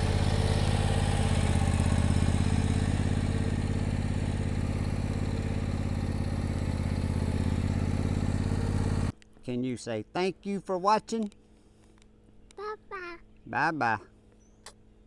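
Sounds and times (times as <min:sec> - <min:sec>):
lawnmower engine running: 0:00.0 - 0:09.1.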